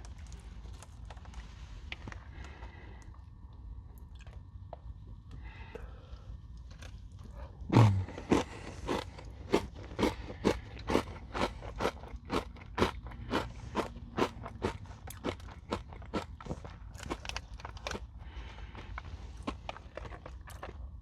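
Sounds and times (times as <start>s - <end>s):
crunchy chewing: 6.5s - 21.0s
crunching bite of granola bar: 6.6s - 20.8s.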